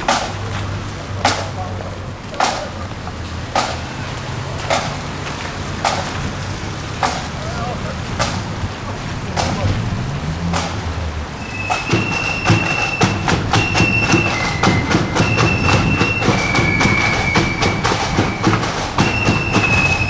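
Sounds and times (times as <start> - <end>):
steady drum beat: 0.0 - 20.0
flutes playing long notes: 11.4 - 20.0.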